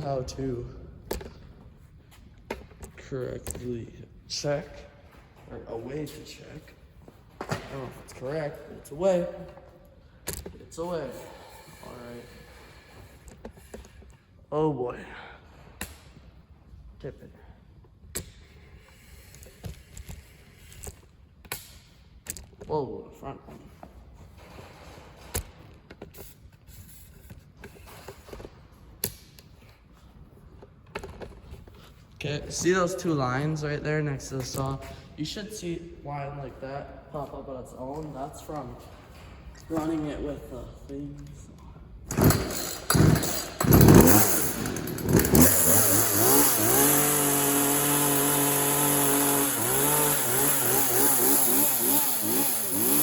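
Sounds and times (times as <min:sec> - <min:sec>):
chainsaw engine at high revs: 0:42.1 - 0:53.0.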